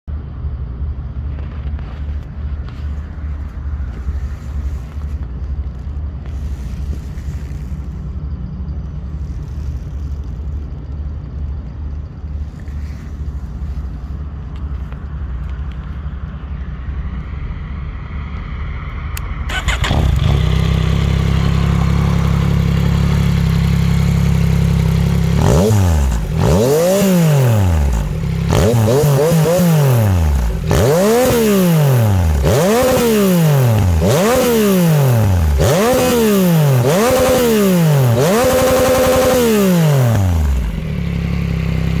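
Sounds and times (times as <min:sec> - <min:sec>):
motorcycle engine idling and revving: 0:00.1 - 0:42.0.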